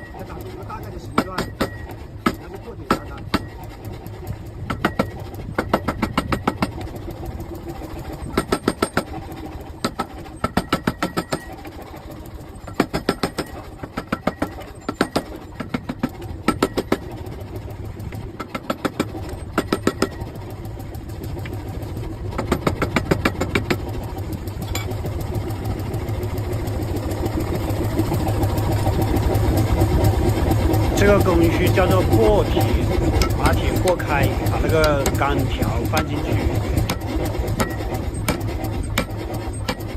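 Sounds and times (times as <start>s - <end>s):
power hammer striking hot iron: 0.0s - 3.7s, 4.7s - 6.9s, 8.3s - 9.2s, 9.8s - 11.6s, 12.7s - 17.1s, 18.4s - 20.2s, 22.4s - 24.0s, 24.6s - 25.1s, 31.0s - 39.9s
motor humming: 0.0s - 39.9s.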